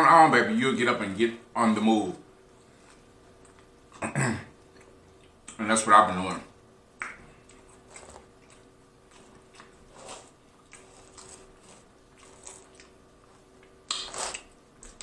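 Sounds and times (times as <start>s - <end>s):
person chewing food: 2.5s - 5.5s, 7.0s - 15.0s.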